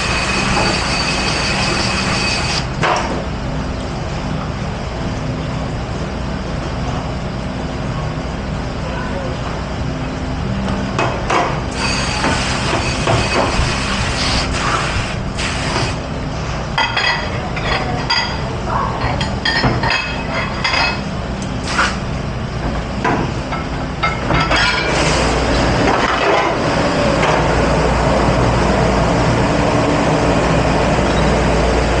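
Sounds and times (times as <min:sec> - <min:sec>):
machine hum: 0:00.0 - 0:16.9, 0:25.2 - 0:32.0
dishes clattering and clinking: 0:16.8 - 0:18.4, 0:19.0 - 0:21.0, 0:23.1 - 0:25.0.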